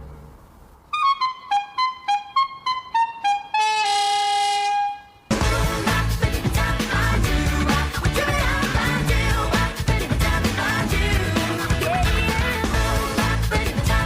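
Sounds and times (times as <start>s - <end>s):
loud backing music: 5.3s - 14.0s.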